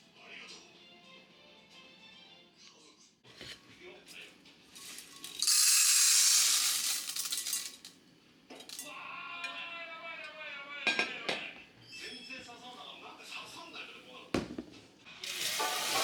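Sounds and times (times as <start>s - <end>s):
beans poured into a bowl: 4.8s - 7.9s, 15.2s - 16.0s.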